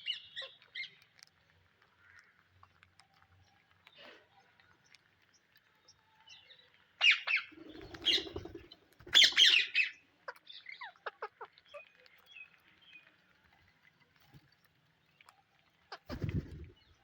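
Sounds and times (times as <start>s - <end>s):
parakeets squawking harshly: 9.1s - 10.0s.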